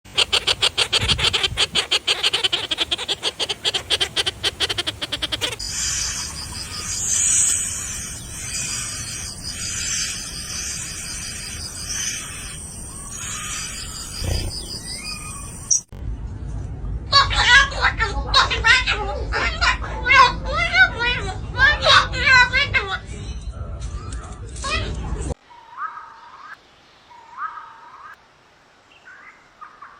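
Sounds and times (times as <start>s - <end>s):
birds calling with rattling notes: 0.0s - 15.9s
hissy bird chatter: 0.0s - 15.9s.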